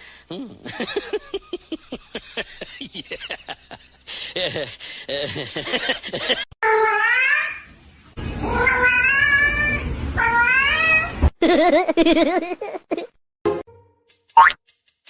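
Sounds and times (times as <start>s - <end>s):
cat meowing: 6.6s - 7.6s, 8.4s - 11.2s.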